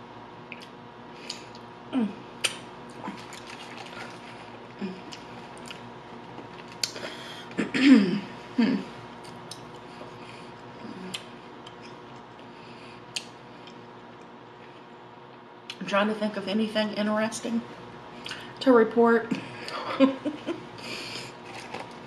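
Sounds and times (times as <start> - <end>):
person humming mm: 1.9 - 2.2
chewing and crunching food: 2.4 - 7.6, 9.1 - 15.0, 20.8 - 22.0.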